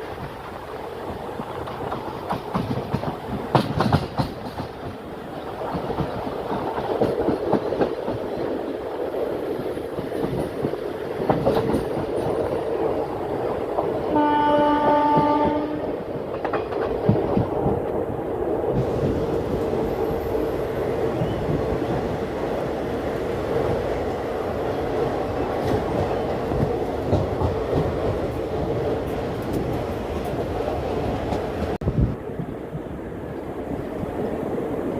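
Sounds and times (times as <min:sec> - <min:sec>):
train rumbling: 0:00.0 - 0:34.9
wheels clattering over rail joints: 0:09.8 - 0:13.1, 0:16.1 - 0:18.0
train horn: 0:14.1 - 0:16.0.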